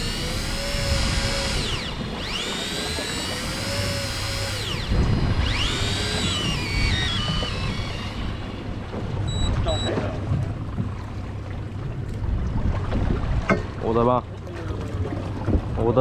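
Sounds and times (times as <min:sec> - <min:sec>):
fishing reel motor whining: 0:00.0 - 0:09.7.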